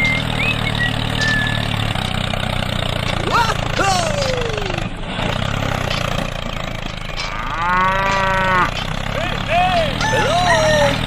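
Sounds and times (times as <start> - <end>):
small engine idling: 0.0 - 11.0
moo-like call: 7.2 - 8.8.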